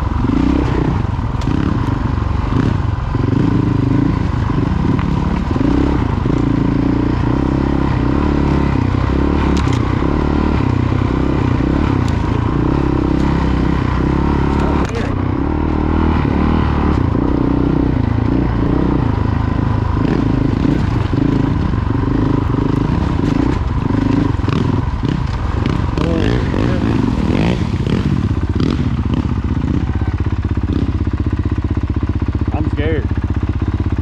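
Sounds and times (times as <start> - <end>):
dirt bike engine revving: 0.0 - 34.0
bike rattles and knocks: 9.4 - 10.1, 20.0 - 29.2.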